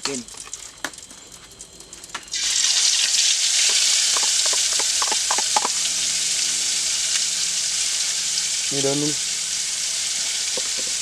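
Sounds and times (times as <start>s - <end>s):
food sizzling in hot oil: 0.0s - 11.0s
oil spitting pops: 3.5s - 5.9s.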